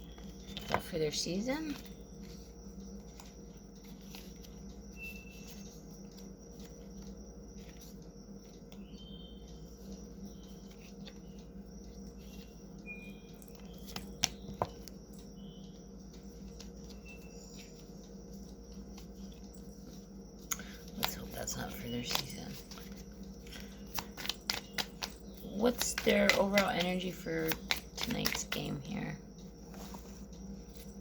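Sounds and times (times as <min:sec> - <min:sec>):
cards shuffling clicks: 0:20.5 - 0:28.8.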